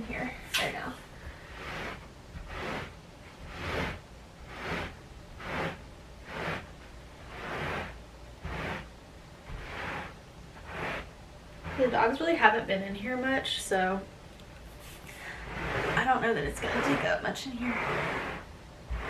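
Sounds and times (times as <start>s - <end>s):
broom swishing on carpet: 0.6s - 8.9s, 9.5s - 12.1s.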